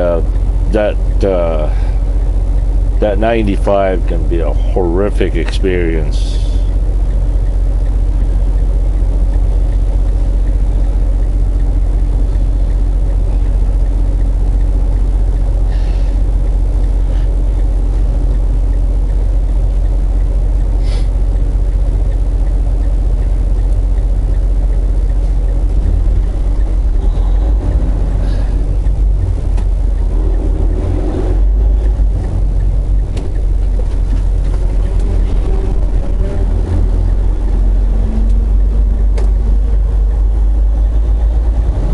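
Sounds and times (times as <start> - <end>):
road rumble: 0.0 - 41.9
truck engine drone: 0.0 - 41.9.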